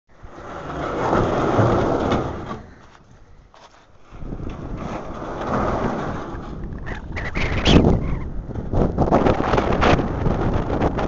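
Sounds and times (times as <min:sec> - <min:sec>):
strong wind buffeting microphone: 0:04.0 - 0:11.0.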